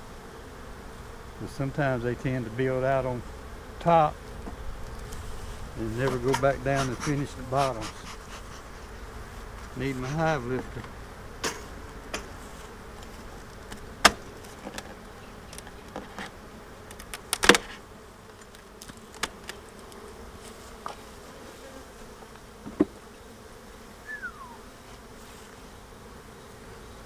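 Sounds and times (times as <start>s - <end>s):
honeybees humming: 0.0s - 27.0s
hive frames clicking and knocking: 6.0s - 20.2s, 22.2s - 23.0s
short falling whistle: 24.0s - 24.7s.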